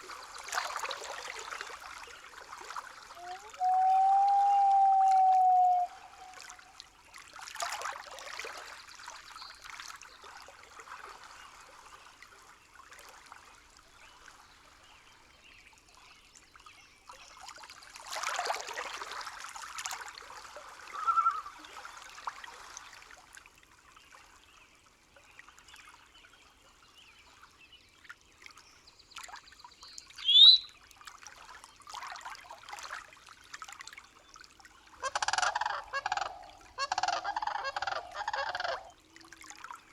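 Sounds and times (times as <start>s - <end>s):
faint water trickling: 0.0s - 39.9s
bird calls: 3.2s - 6.6s, 20.9s - 21.6s, 30.2s - 30.7s, 35.0s - 39.0s.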